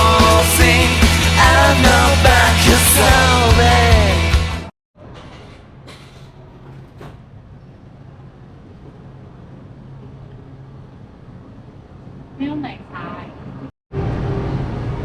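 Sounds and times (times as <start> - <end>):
low mechanical hum: 5.0 - 15.0.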